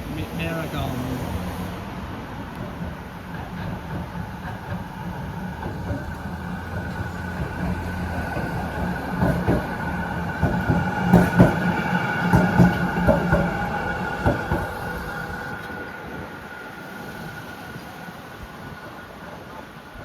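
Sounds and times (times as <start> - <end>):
tram whine: 0.0 - 20.0
tram wheels knocking on track: 2.3 - 15.9.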